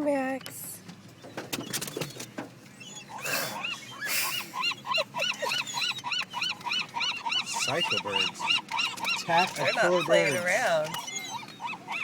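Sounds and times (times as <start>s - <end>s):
sharp clicks and rustles: 0.8s - 2.7s
birds calling: 1.0s - 12.0s.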